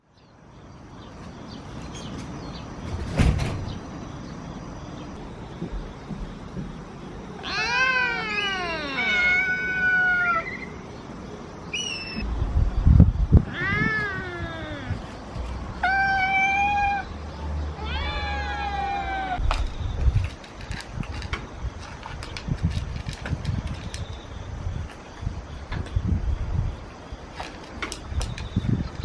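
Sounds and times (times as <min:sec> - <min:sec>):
cats meowing: 0:07.1 - 0:10.9, 0:13.4 - 0:15.1, 0:15.8 - 0:17.2, 0:17.8 - 0:19.4.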